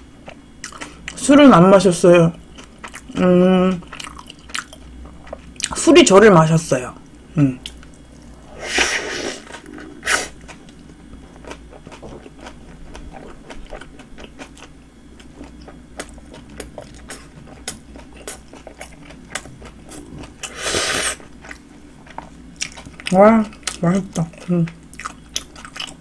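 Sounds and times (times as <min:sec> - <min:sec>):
chewing with wet mouth clicks: 0:00.2 - 0:01.2, 0:02.4 - 0:05.8, 0:07.0 - 0:08.4, 0:09.5 - 0:20.6, 0:21.2 - 0:26.0.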